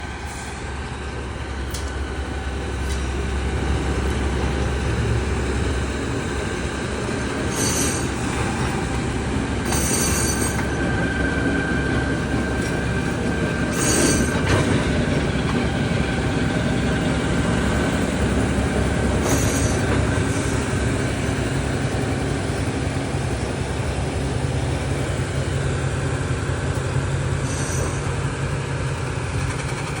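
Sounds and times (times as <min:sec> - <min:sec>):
train rumbling on track: 0:00.0 - 0:30.0
faint wheel squeal: 0:07.5 - 0:08.2, 0:13.7 - 0:14.4, 0:27.4 - 0:28.1.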